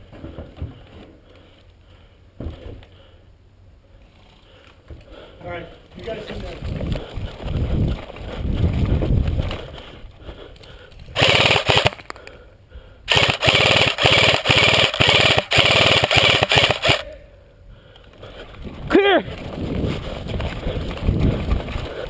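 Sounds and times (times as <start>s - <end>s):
airsoft gun firing full auto: 11.2s - 12.1s, 13.1s - 17.0s.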